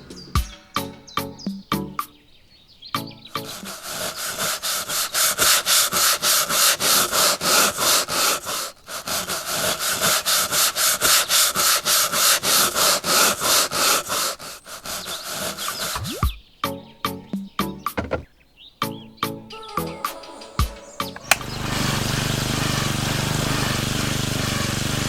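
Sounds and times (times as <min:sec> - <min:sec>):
rapid rubbing or scraping strokes: 0:03.4 - 0:16.0.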